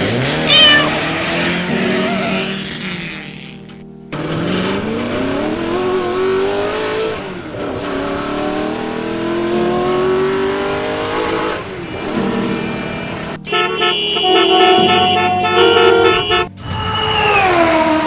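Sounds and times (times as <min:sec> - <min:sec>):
car engine accelerating: 0:04.2 - 0:12.2.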